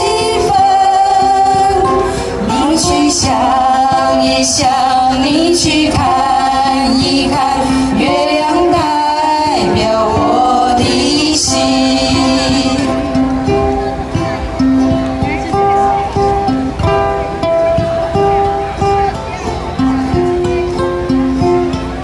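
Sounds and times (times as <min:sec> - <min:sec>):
people singing: 0:00.0 - 0:15.0
ukulele: 0:00.0 - 0:22.0.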